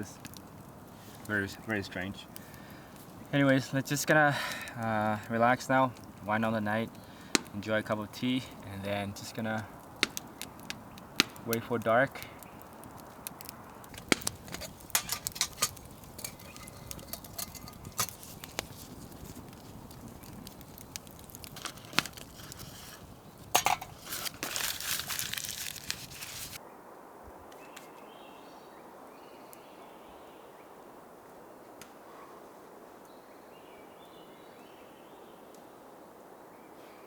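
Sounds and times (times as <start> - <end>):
wood fire crackling: 0.0 - 26.6
forest ambience: 0.0 - 37.0
cookware clinking: 14.5 - 18.1, 23.6 - 24.0.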